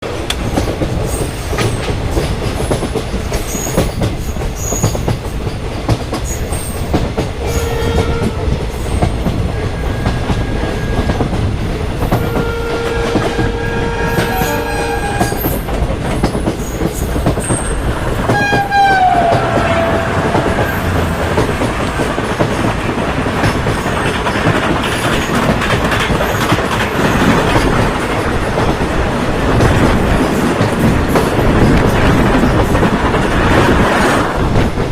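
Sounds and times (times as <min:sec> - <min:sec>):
train wheels rumbling on rails: 0:00.0 - 0:34.9
train horn blasts: 0:07.4 - 0:08.5, 0:09.6 - 0:11.2, 0:12.2 - 0:15.6, 0:18.3 - 0:21.5
horn-like tone sliding down: 0:12.2 - 0:15.6, 0:18.3 - 0:21.7.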